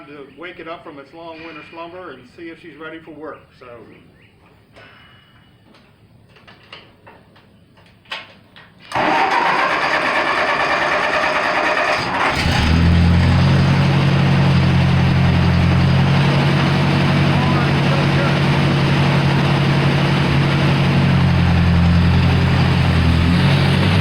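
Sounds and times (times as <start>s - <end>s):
tractor engine idling: 8.9s - 24.0s.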